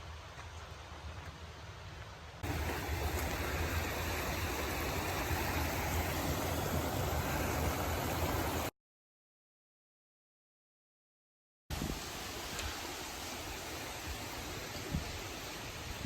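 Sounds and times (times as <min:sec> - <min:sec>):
running water rushing: 0:02.4 - 0:08.7, 0:11.7 - 0:16.0.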